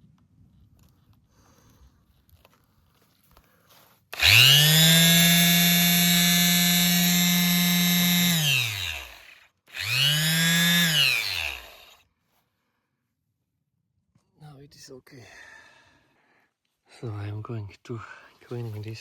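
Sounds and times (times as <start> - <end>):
orbital sander motor whirring: 4.2 - 12.0.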